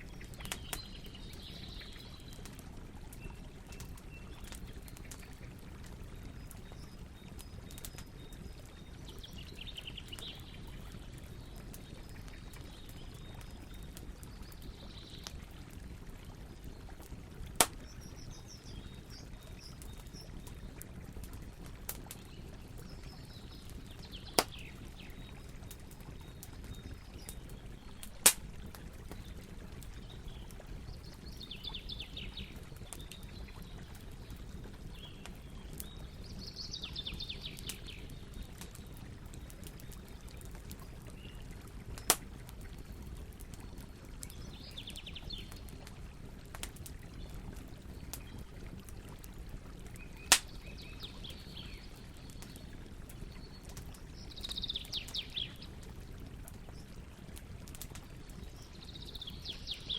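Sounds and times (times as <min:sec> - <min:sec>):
campfire burning: 0:00.0 - 0:59.9
burning wood popping: 0:00.1 - 0:01.6, 0:17.3 - 0:30.6, 0:40.7 - 0:44.6, 0:50.0 - 0:51.0.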